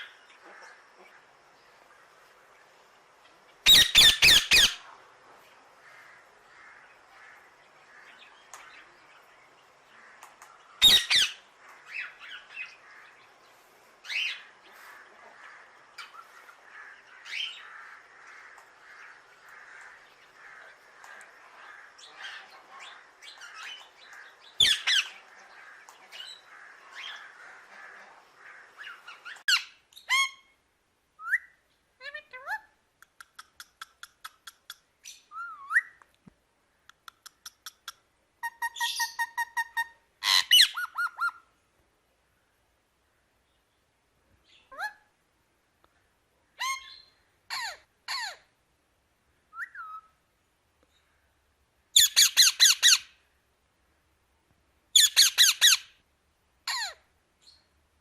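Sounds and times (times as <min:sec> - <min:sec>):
parrot squawking: 0:03.6 - 0:04.8, 0:10.8 - 0:12.0, 0:24.6 - 0:25.2, 0:28.8 - 0:30.5, 0:38.4 - 0:41.4, 0:46.6 - 0:48.4, 0:52.0 - 0:53.1, 0:55.0 - 0:55.9, 0:56.7 - 0:57.0.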